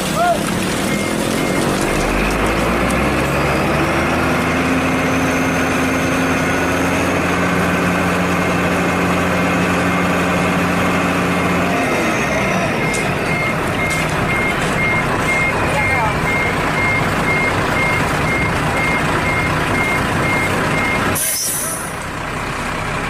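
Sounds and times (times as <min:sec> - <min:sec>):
diesel truck engine running: 0:00.0 - 0:23.0
reversing alarm beeping: 0:00.8 - 0:03.6, 0:09.3 - 0:22.0.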